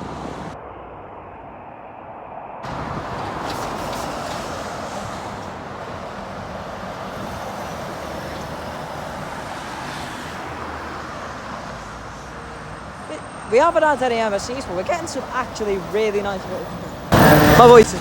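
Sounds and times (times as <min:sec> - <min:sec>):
passing road traffic: 0:00.0 - 0:18.0.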